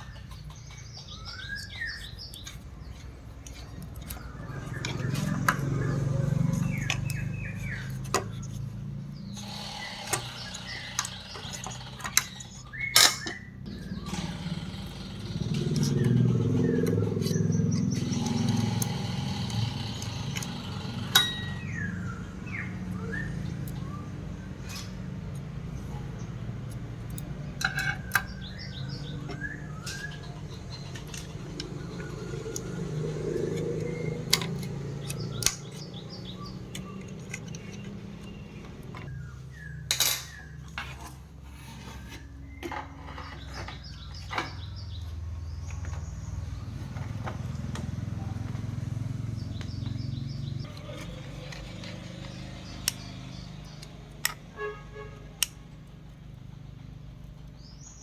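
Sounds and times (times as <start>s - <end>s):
birds chirping: 0.0s - 58.0s
clinks of small metal tools: 39.9s - 41.1s.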